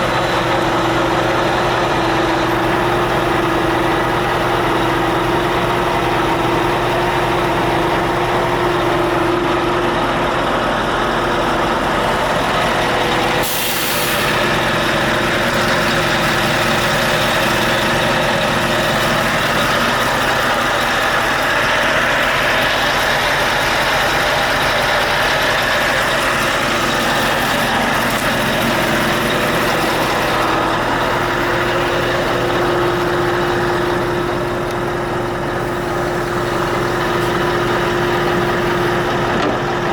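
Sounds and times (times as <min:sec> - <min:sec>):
diesel truck engine idling: 0:00.0 - 0:39.9
air release hiss: 0:13.4 - 0:14.4.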